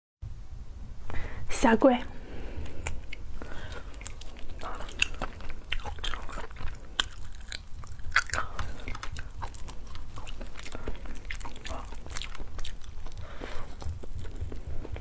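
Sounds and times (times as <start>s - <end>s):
person chewing: 2.2s - 15.0s.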